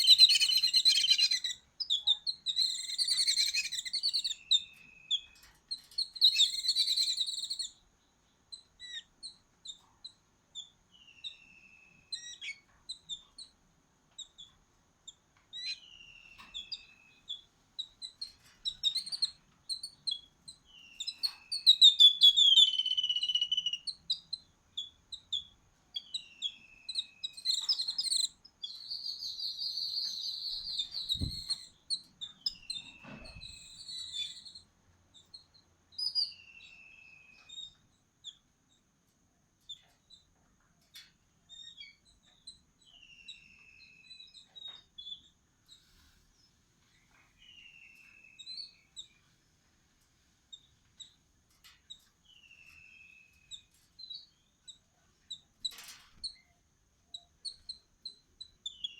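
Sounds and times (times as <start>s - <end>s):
buzzy bird trill: 0.0s - 7.8s, 15.8s - 31.8s
small birds chirping: 0.0s - 58.9s.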